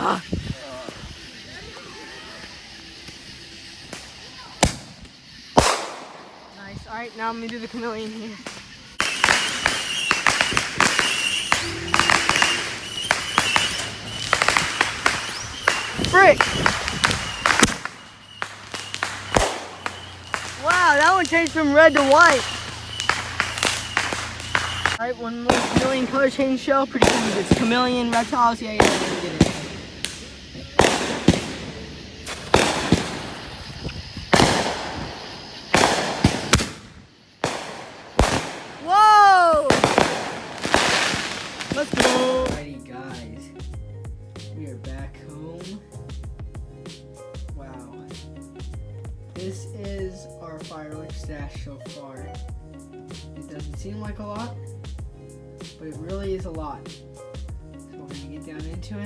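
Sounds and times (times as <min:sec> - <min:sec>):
firework popping and crackling: 0:02.5 - 0:42.7.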